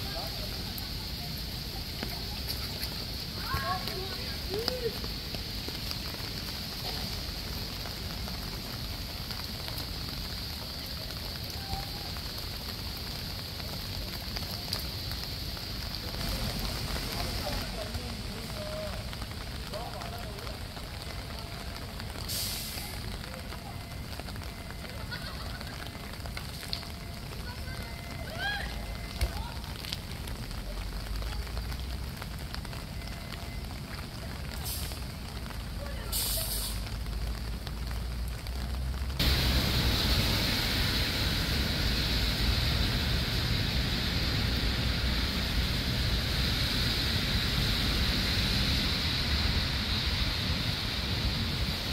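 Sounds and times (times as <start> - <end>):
water spraying and splashing: 0.0 - 51.9
spray hiss: 22.3 - 23.0, 36.0 - 36.9, 39.2 - 51.9.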